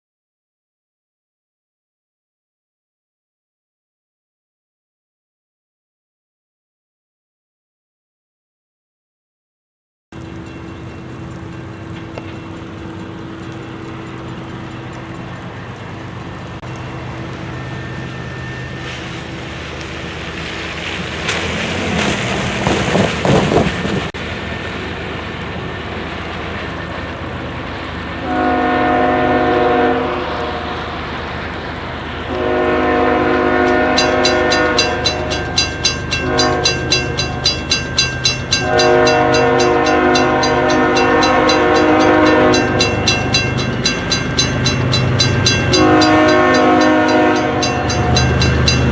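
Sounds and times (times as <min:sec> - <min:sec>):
locomotive bell ringing rapidly: 0:10.2 - 0:19.8, 0:33.1 - 0:48.9
diesel locomotive engines droning: 0:10.2 - 0:48.9
locomotive air horn blasts: 0:28.2 - 0:31.0, 0:32.3 - 0:48.9.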